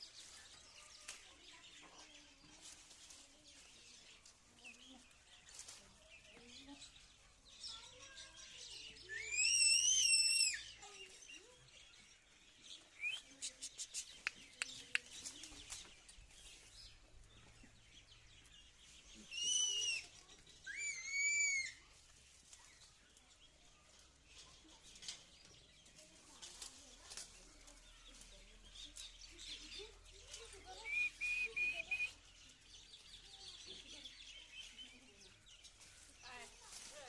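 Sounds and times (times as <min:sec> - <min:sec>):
high-pitched bird calls: 0:07.6 - 0:11.9, 0:12.6 - 0:22.0, 0:27.9 - 0:36.4.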